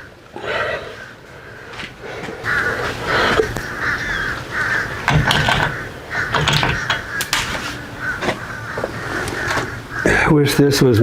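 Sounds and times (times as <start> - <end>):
crow cawing: 0.0 - 10.7
hand tools clicking: 5.0 - 7.7.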